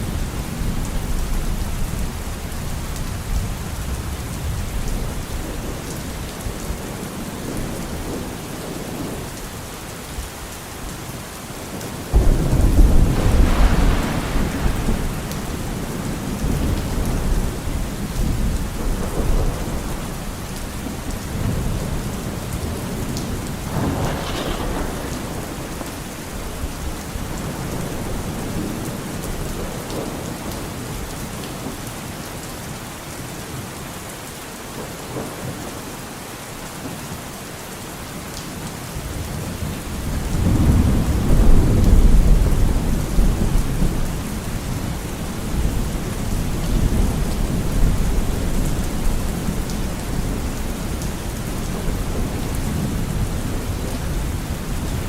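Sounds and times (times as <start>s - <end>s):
steady rain falling: 0.0s - 55.0s
thunder rumbling: 12.1s - 30.3s, 39.9s - 55.0s.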